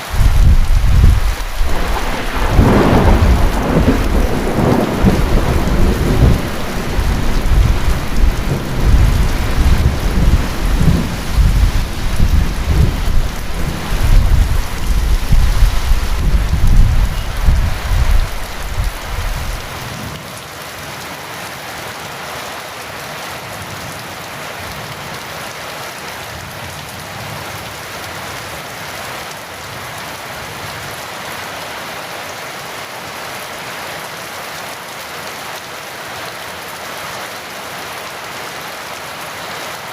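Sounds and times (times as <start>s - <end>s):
heavy rain: 0.0s - 39.9s
rolling thunder: 0.2s - 19.8s.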